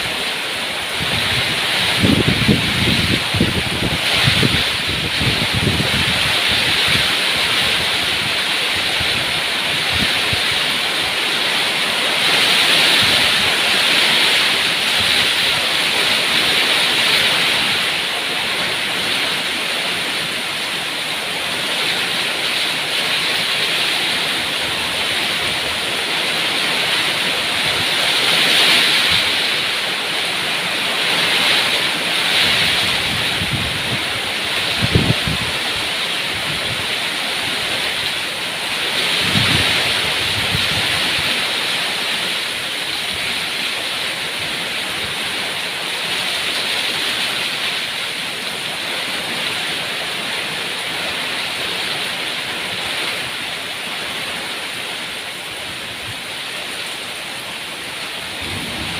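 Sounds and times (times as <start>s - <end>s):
heavy rain: 0.0s - 58.9s
wind buffeting microphone: 0.9s - 10.8s, 32.3s - 38.1s, 38.9s - 41.6s, 58.1s - 58.9s.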